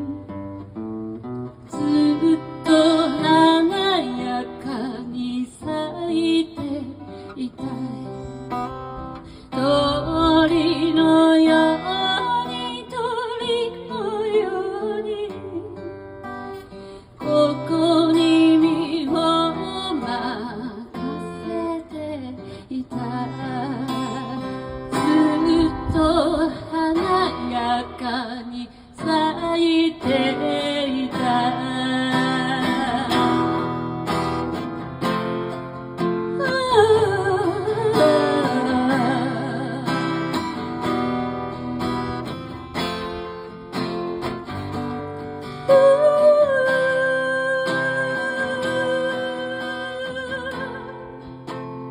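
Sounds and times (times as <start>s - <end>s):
acoustic guitar strumming: 0.0s - 51.9s
person singing: 1.7s - 8.4s, 17.1s - 33.9s, 36.3s - 40.6s, 45.5s - 51.4s.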